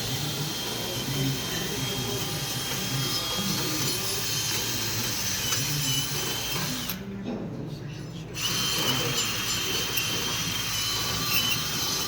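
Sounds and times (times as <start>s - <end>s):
power tool whirring: 0.0s - 7.0s, 8.4s - 12.0s.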